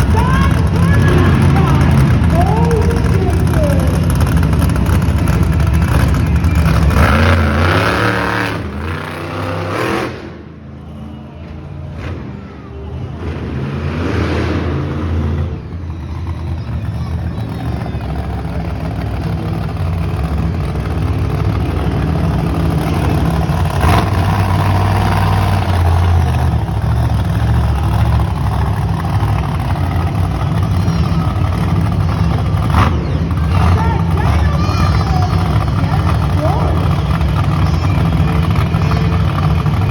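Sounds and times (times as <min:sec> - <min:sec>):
monster truck engine revving: 0:00.0 - 0:39.9.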